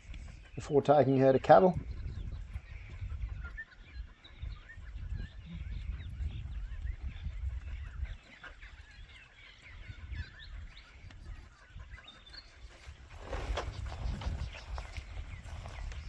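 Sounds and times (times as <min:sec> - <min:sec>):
birds chirping: 0:00.0 - 0:16.0
wind rumble on microphone: 0:00.0 - 0:16.0
rustling noise: 0:12.6 - 0:16.0.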